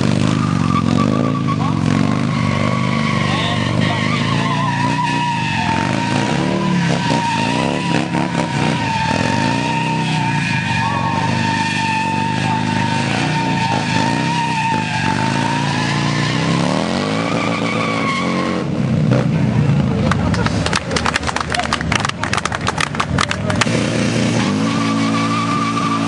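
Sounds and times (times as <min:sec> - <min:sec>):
motorcycle engine revving: 0:00.0 - 0:20.2, 0:23.2 - 0:26.0
tyre squealing: 0:00.2 - 0:18.7, 0:23.6 - 0:26.0.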